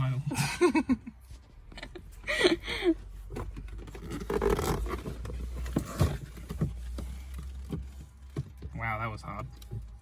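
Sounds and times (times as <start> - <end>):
plastic trim scraping and rubbing: 3.4 - 8.8.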